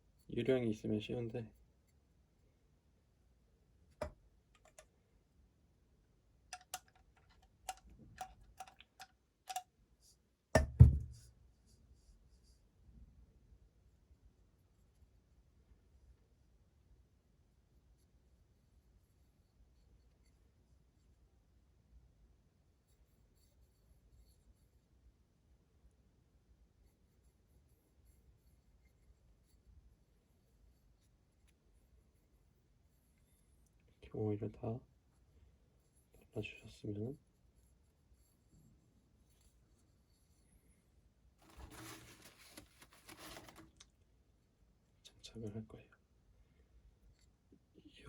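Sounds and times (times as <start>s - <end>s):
faint room hum: 0.0s - 48.0s
soft clicks and scratching: 4.0s - 5.0s, 6.6s - 10.2s, 41.4s - 44.0s.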